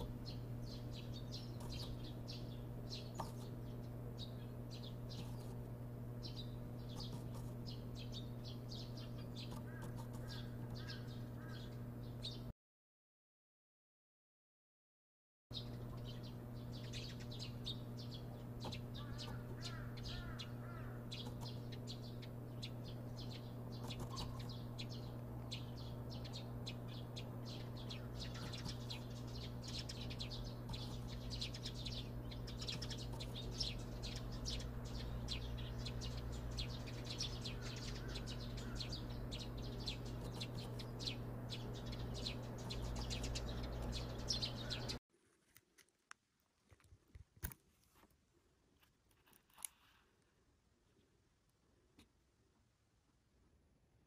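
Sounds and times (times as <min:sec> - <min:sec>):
birds chirping: 0:00.0 - 0:12.5, 0:15.5 - 0:45.0
steady low hum: 0:00.0 - 0:12.5, 0:15.5 - 0:45.0.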